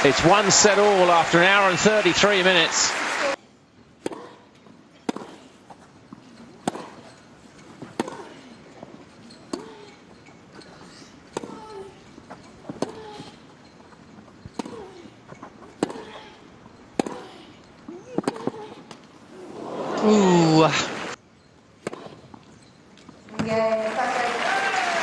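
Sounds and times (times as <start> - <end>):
racket hitting tennis ball: 5.0 - 5.5, 6.6 - 7.1, 7.8 - 8.4, 14.5 - 15.0, 15.7 - 16.2, 16.9 - 17.4, 18.1 - 19.0, 21.8 - 22.3.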